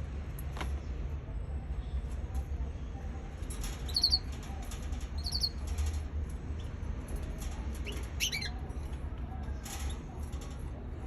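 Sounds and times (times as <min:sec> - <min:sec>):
young canary chirping: 0:03.9 - 0:04.3, 0:05.2 - 0:05.6, 0:07.8 - 0:08.6.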